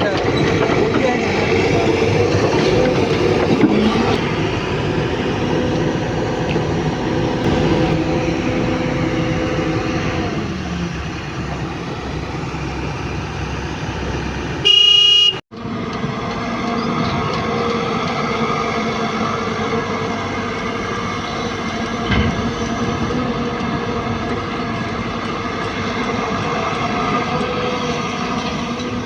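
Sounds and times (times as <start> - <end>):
heavy diesel engine running: 0.0 - 29.0
loud vehicle horn blast: 14.6 - 15.4.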